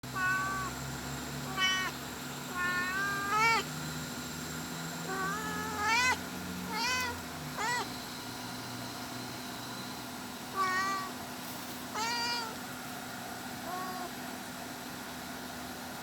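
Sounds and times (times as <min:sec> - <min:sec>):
cat meowing: 0:00.2 - 0:00.8, 0:01.4 - 0:03.7, 0:05.0 - 0:07.9, 0:10.5 - 0:11.2, 0:11.9 - 0:12.6, 0:13.6 - 0:14.2.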